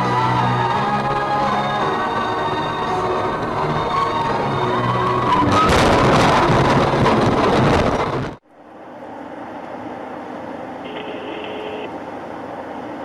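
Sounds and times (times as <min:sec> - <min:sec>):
vehicle driving hum: 0:00.0 - 0:13.0
loud rushing noise: 0:01.8 - 0:08.4.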